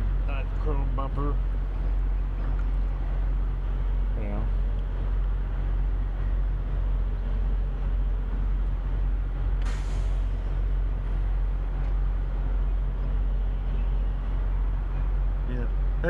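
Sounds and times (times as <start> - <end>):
truck engine drone: 0.0 - 16.0
short air hiss: 9.6 - 10.4.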